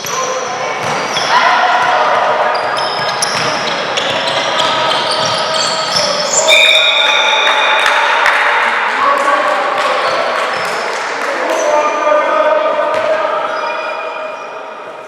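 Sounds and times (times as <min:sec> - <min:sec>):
sneakers squeaking: 0:00.0 - 0:08.0, 0:12.9 - 0:14.8
basketball bouncing: 0:00.8 - 0:01.1, 0:02.9 - 0:05.4
high squeal: 0:02.5 - 0:08.0.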